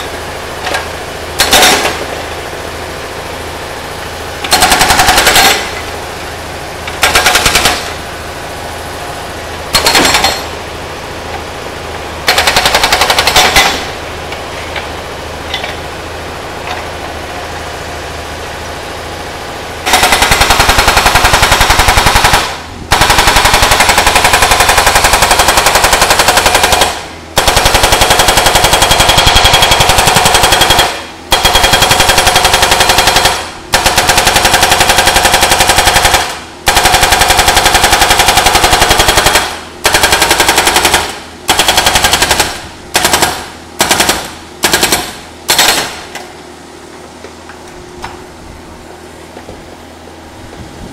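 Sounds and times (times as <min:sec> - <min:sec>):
hydraulic breaker hammering metal: 0:00.0 - 0:02.3, 0:04.4 - 0:06.0, 0:06.8 - 0:08.0, 0:09.7 - 0:10.6, 0:12.2 - 0:14.0
excavator engine running: 0:00.0 - 0:50.9.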